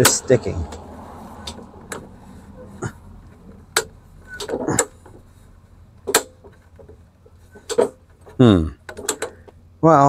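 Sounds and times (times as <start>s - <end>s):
metallic clicks and knocks: 0.0s - 2.2s, 3.2s - 5.3s, 5.9s - 9.6s
heavy clunk: 0.0s - 5.3s.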